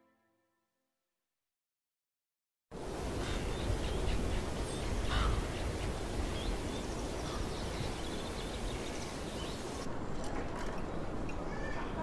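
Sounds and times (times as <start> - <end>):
birds calling: 2.9 - 9.9.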